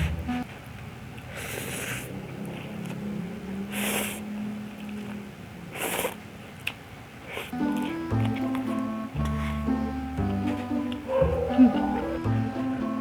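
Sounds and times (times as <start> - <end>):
soft background music: 0.0 - 0.5, 7.5 - 13.0.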